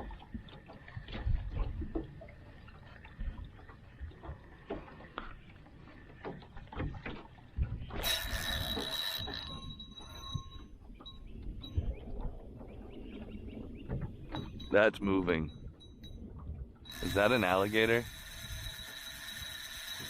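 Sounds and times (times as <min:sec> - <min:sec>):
fishing reel line paying out: 0:08.0 - 0:10.3, 0:16.9 - 0:20.0.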